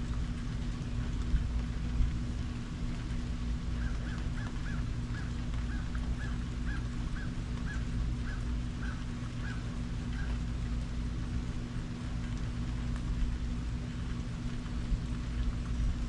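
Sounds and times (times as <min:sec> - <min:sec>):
steady low hum: 0:00.0 - 0:16.0
bird calling: 0:03.7 - 0:10.4.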